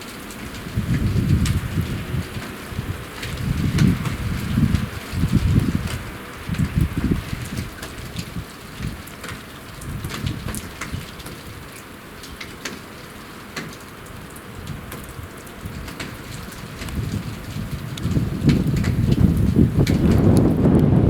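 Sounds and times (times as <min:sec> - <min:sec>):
rain falling: 0:00.0 - 0:21.0
raindrops tapping close: 0:00.0 - 0:21.0
low gusting rumble: 0:00.4 - 0:09.1, 0:14.6 - 0:21.0.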